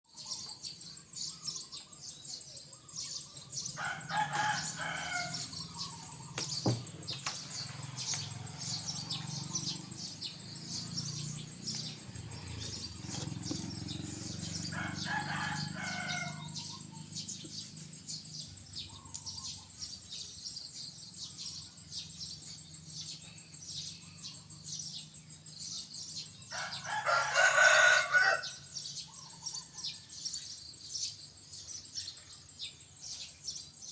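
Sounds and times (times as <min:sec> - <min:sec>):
rooster crowing: 0:03.8 - 0:06.3, 0:11.3 - 0:17.0, 0:26.5 - 0:28.7.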